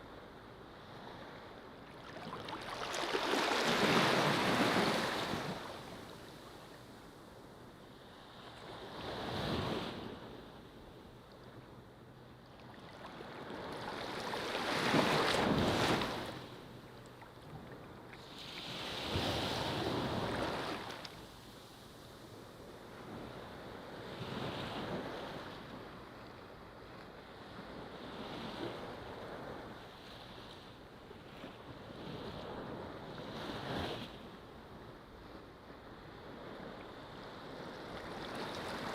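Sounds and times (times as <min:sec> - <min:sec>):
ocean waves on a beach: 0:00.0 - 0:38.9.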